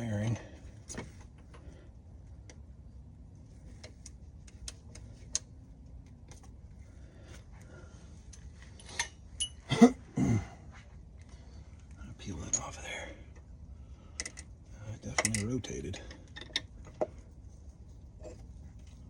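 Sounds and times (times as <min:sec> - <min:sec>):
ringing metal clinks: 0:09.0 - 0:09.7.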